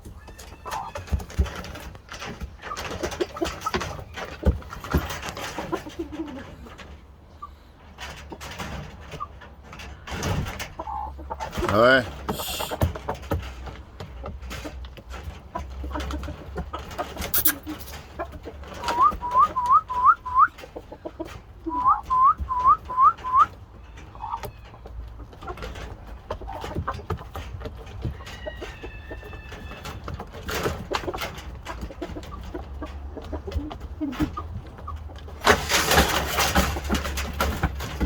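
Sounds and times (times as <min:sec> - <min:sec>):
steady whistle-like tone: 0:18.9 - 0:20.5.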